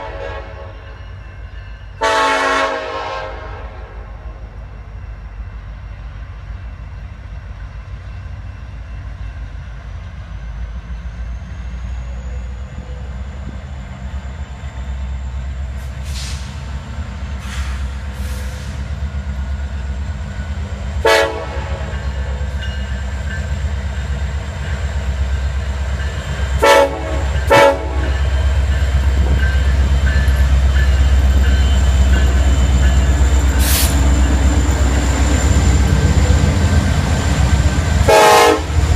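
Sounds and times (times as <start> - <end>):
locomotive air horn blasts: 0.0 - 1.0, 2.0 - 4.2, 21.0 - 22.4, 26.6 - 28.2, 38.0 - 38.9
freight train rumbling: 0.0 - 38.9.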